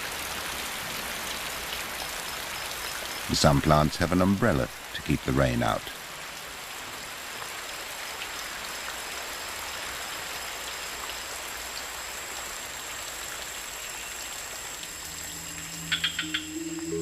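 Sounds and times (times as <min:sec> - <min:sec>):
heavy rain on leaves: 0:00.0 - 0:17.0
soft music: 0:15.1 - 0:17.0.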